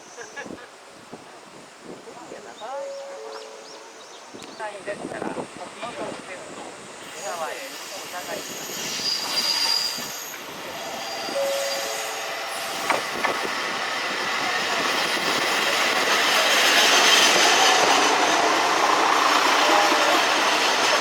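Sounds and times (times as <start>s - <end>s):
train running on rails: 2.3s - 21.0s
wheel squeal: 8.4s - 12.3s.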